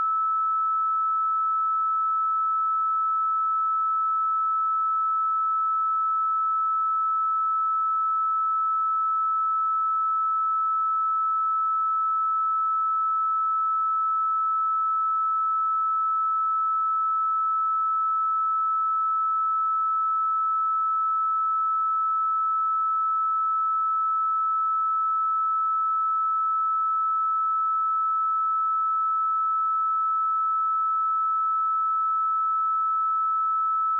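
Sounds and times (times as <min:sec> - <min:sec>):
sine-wave test tone: 0:00.0 - 0:33.9.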